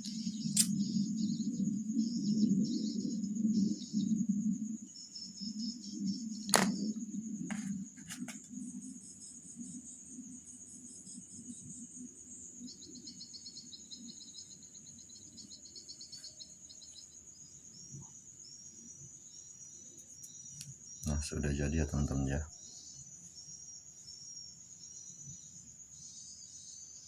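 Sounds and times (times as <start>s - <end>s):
insects chirping: 0.0s - 27.0s
sharp knock: 6.5s - 6.8s.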